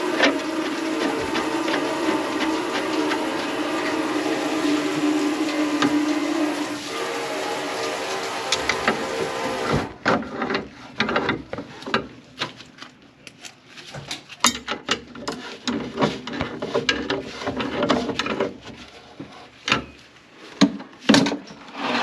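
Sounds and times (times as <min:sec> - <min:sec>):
steady running sound: 0:00.0 - 0:06.0.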